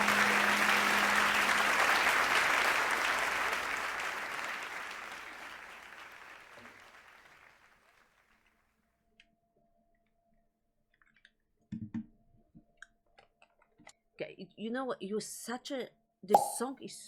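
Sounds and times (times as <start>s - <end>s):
audience applause: 0.0s - 7.9s.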